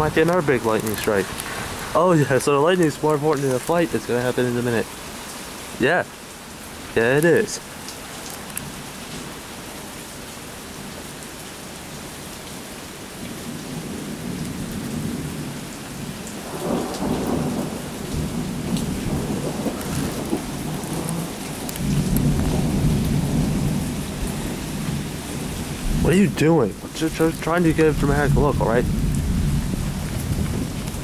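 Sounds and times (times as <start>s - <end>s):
steady rain falling: 0.0s - 31.0s
thunder rumbling: 16.4s - 31.0s.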